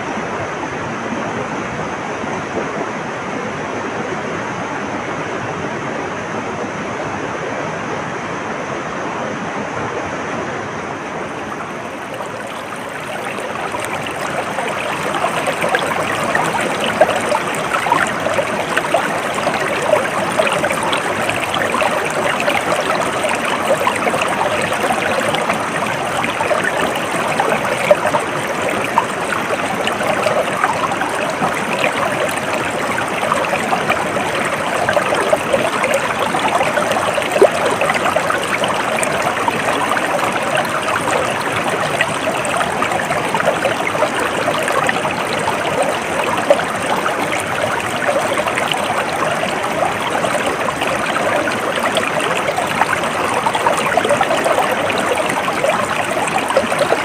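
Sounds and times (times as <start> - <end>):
water flowing in a stream: 0.0 - 57.0
small water splashes: 11.0 - 57.0.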